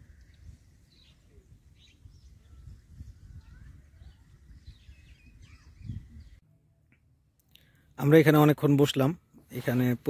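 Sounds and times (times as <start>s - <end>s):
faint bird chirps: 0.0s - 7.0s.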